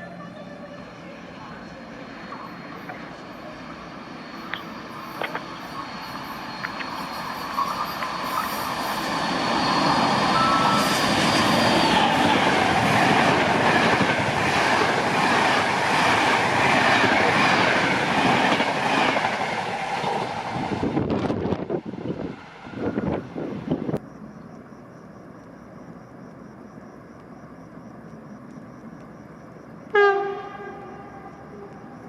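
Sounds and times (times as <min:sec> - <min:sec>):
train rushing past: 0:00.0 - 0:24.0
train high whine: 0:00.0 - 0:24.7, 0:27.6 - 0:32.0.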